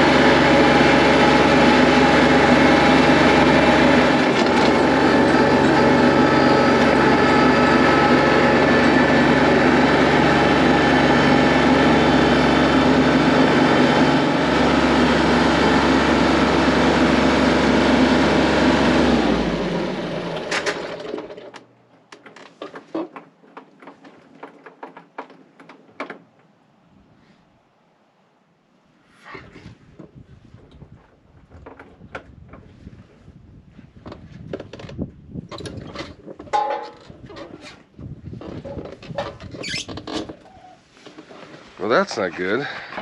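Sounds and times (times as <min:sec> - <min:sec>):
tractor diesel engine running: 0:00.0 - 0:22.3
scattered clicks and knocks: 0:20.5 - 0:26.5.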